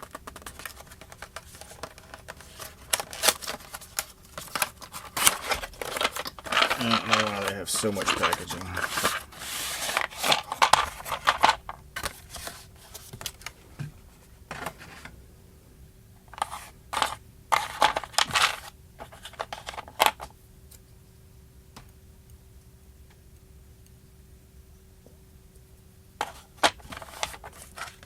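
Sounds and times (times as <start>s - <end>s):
packaging rustling and scraping: 0.0s - 15.2s, 16.3s - 20.3s, 26.2s - 28.0s
faint steady hum: 0.0s - 28.0s.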